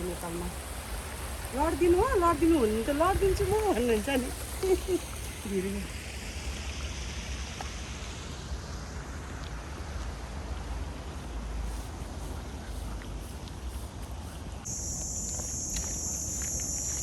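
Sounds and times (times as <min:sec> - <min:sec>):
insect chirring: 0:14.6 - 0:17.0.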